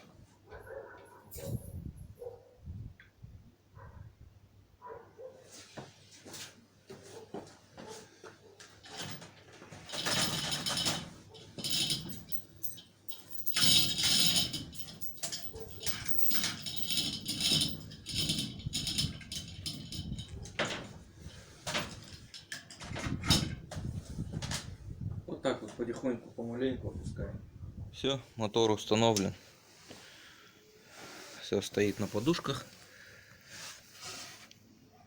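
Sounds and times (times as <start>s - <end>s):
winch mechanism rattling: 8.8s - 23.6s.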